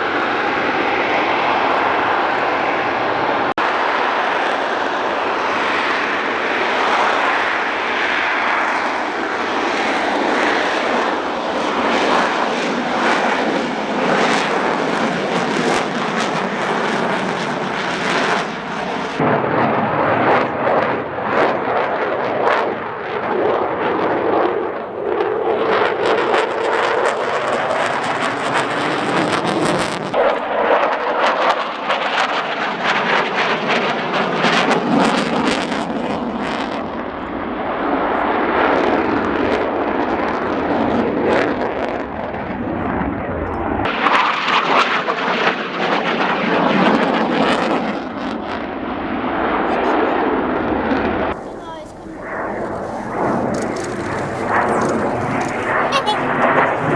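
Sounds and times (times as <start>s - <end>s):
aircraft engine drone: 51.4s - 56.9s.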